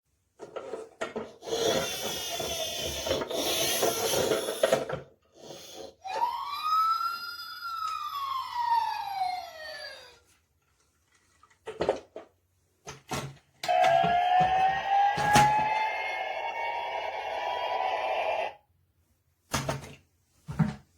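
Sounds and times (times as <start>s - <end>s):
siren wail: 7.8s - 10.0s, 13.7s - 18.6s.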